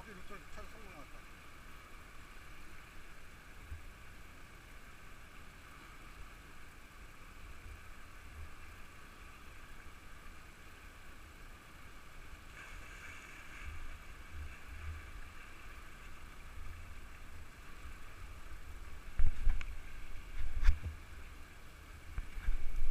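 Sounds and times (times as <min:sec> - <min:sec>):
river water rushing: 0:00.0 - 0:22.9
wind rumbling on microphone: 0:12.7 - 0:22.9.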